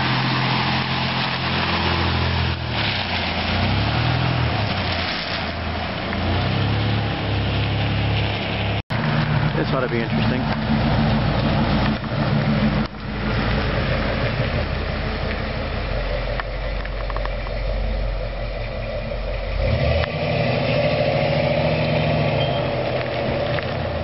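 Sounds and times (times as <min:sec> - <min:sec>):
car engine running: 0:08.9 - 0:19.9.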